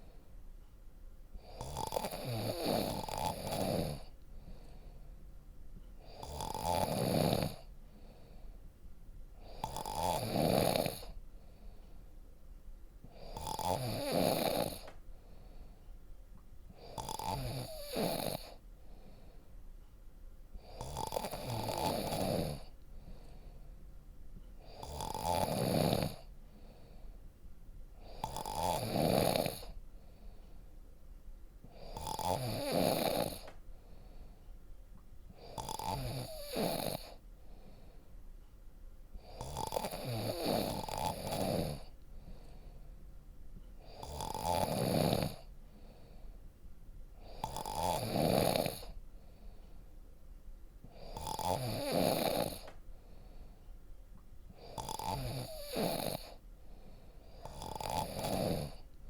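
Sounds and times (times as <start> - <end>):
quiet breathing: 0.0 - 59.0
person snoring deeply: 1.4 - 4.1, 6.0 - 7.7, 9.4 - 11.2, 13.2 - 14.9, 16.8 - 18.6, 20.6 - 22.7, 24.7 - 26.3, 28.1 - 29.8, 31.8 - 33.5, 35.4 - 37.2, 39.3 - 41.9, 43.8 - 45.5, 47.2 - 49.0, 51.0 - 52.7, 54.6 - 56.4, 57.3 - 58.8.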